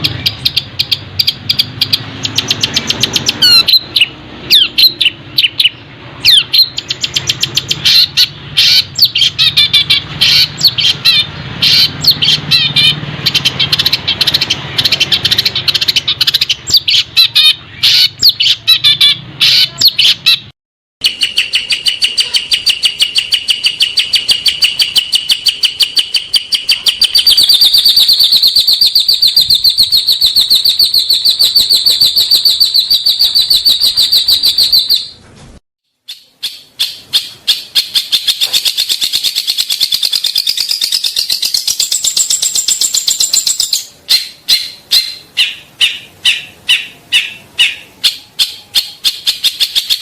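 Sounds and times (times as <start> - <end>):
songbirds singing: 0.0 - 35.2, 36.0 - 50.0
bird chips: 36.1 - 50.0.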